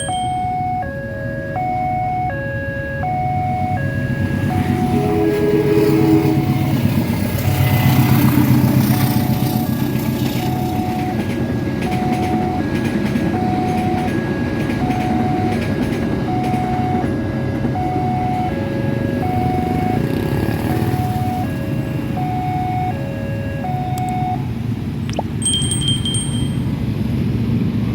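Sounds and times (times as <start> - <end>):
level crossing alarm ding: 0.0 - 6.8, 8.9 - 12.7, 22.2 - 23.0, 23.6 - 24.4, 25.1 - 26.8
brief high chime: 25.3 - 26.7.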